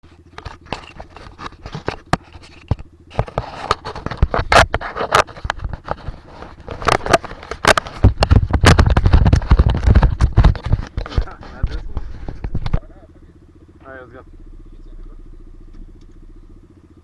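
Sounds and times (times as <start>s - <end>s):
camera handling scraping and knocking: 0.2s - 12.8s
low rumble: 5.5s - 17.0s.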